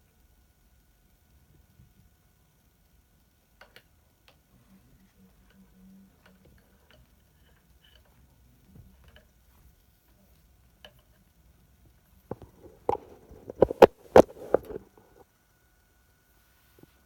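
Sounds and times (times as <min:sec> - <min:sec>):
hard objects clicking and knocking: 0:12.3 - 0:15.2.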